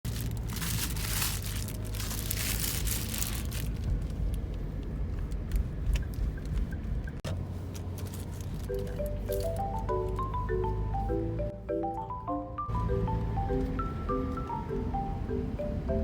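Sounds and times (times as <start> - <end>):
packaging crinkling and tearing: 0.0 - 4.4.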